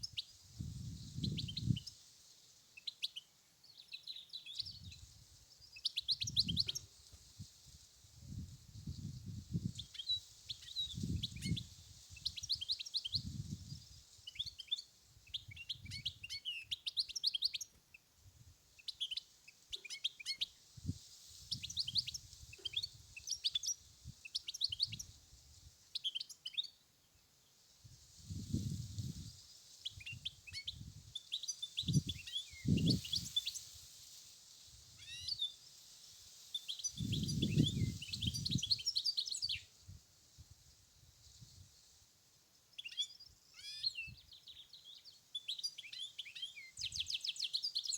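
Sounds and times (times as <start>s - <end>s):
wind buffeting microphone: 31.8s - 33.3s, 37.0s - 38.7s.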